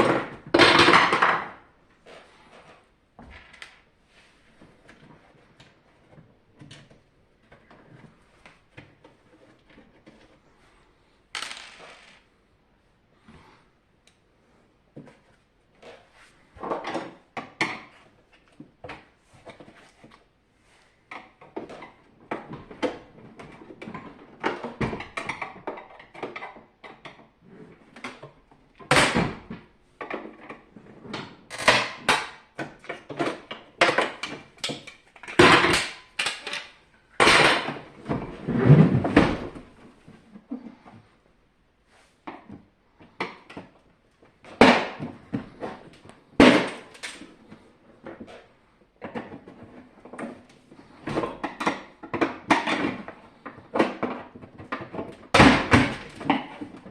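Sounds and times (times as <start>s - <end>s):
plastic parts clicking and clattering: 11.4s - 12.3s, 31.2s - 38.2s.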